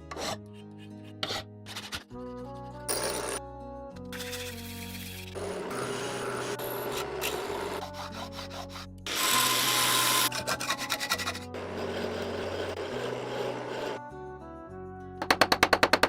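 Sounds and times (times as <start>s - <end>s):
background music with bass: 0.0s - 9.1s, 14.0s - 16.0s
tool rasping a surface: 0.1s - 2.1s, 4.2s - 14.0s.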